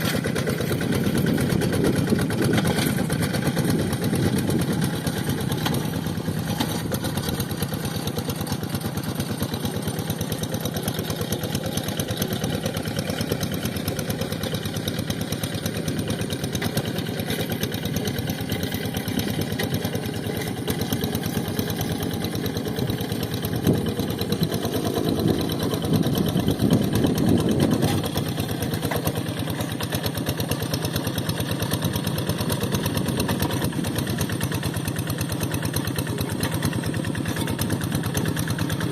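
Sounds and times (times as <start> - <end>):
tractor diesel engine chugging: 0.0 - 38.9.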